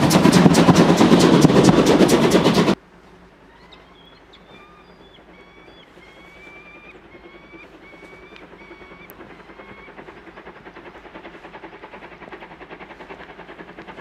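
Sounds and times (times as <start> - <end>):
train coaches clattering past: 0.0 - 3.5
small birds chirping: 3.5 - 9.9.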